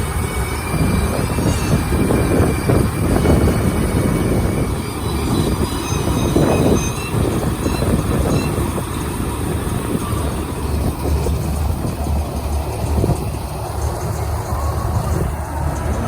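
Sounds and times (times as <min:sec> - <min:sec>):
combine harvester engine drone: 0:00.0 - 0:16.0
machine rattling: 0:00.0 - 0:16.0
faint high squeaks: 0:00.1 - 0:12.0.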